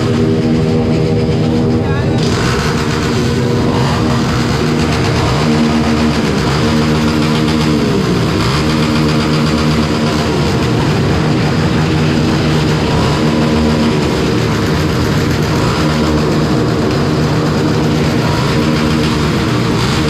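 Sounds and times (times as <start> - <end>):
constant rushing noise: 0.0 - 20.0
motorcycle engine cruising: 0.0 - 20.0.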